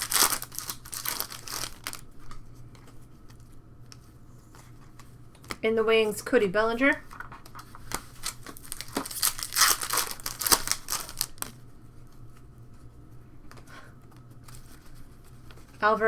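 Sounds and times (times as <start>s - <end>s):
foil wrapper tearing and crinkling: 0.0s - 2.4s, 7.1s - 11.6s.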